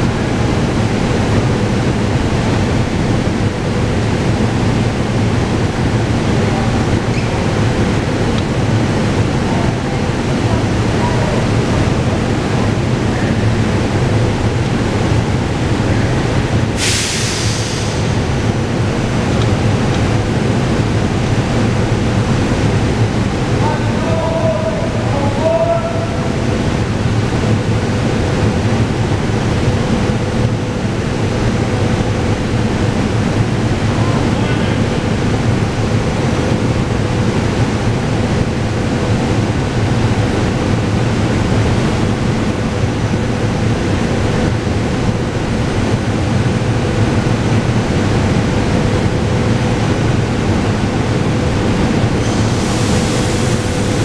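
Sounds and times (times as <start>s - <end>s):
electric train hum: 0.0s - 54.0s
rumbling station din: 0.0s - 54.0s
hiss: 16.8s - 18.2s, 52.2s - 54.0s.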